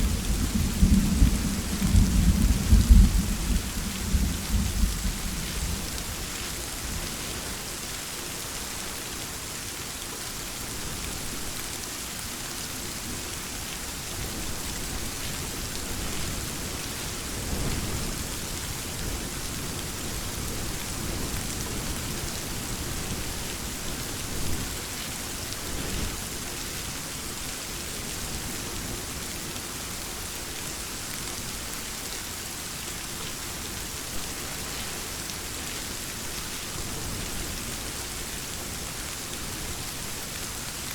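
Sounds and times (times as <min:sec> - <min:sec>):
distant thunder rumbles: 0:00.0 - 0:06.0
steady rain falling: 0:00.0 - 0:40.9.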